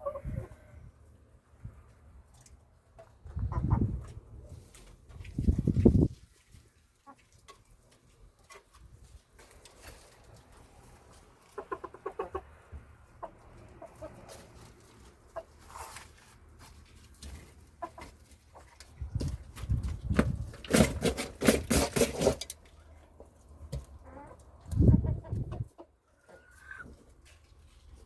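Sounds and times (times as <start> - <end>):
chickens clucking: 0.0 - 0.8, 2.4 - 20.0, 22.7 - 28.0
scratchy rustling noise: 19.3 - 22.4.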